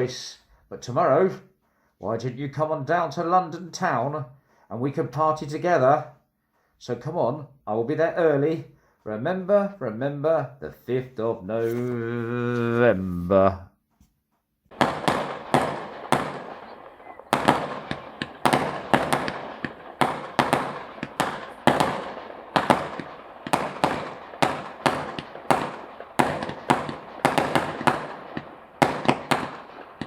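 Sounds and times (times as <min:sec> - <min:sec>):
fireworks banging: 0:14.7 - 0:30.0.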